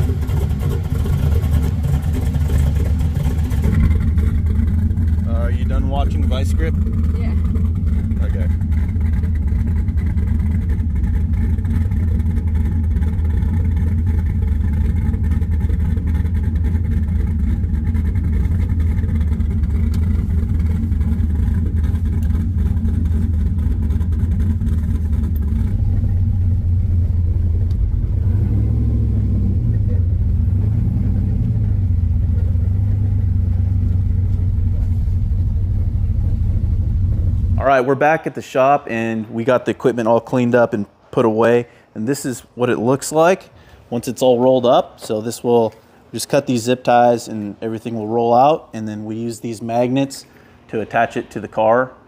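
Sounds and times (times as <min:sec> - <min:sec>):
car engine running: 0:00.0 - 0:40.4.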